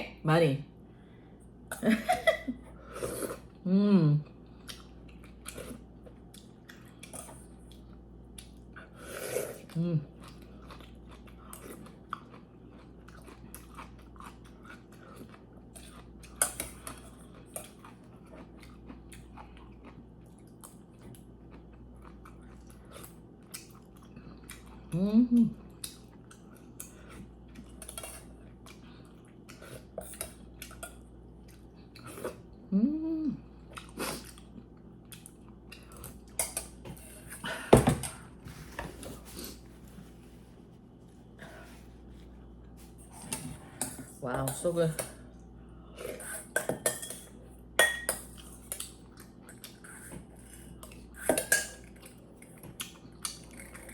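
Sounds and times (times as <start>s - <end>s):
person chewing and biting: 9.6s - 24.8s.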